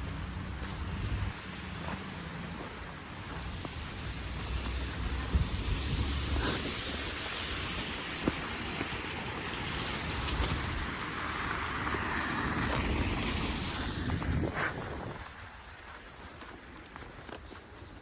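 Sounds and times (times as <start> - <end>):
wind blowing: 3.4 - 16.2
wind buffeting microphone: 3.5 - 15.6.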